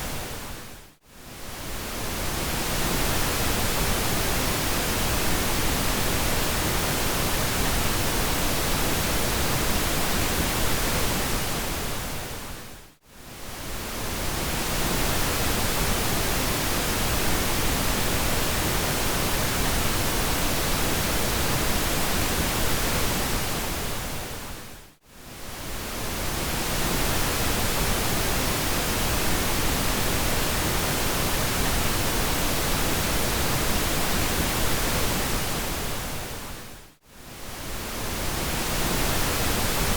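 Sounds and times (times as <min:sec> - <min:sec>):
pink noise hiss: 0:37.2 - 0:39.9.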